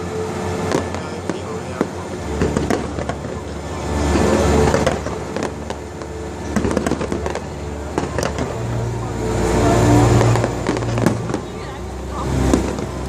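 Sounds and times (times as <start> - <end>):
fireworks bangs and crackles: 0.0 - 13.0
low rumble: 0.0 - 13.0.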